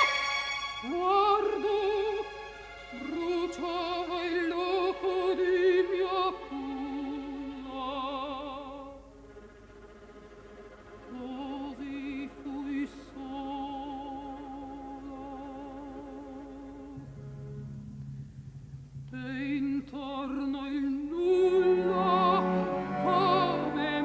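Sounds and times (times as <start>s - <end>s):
operatic voice singing: 19.2s - 24.0s.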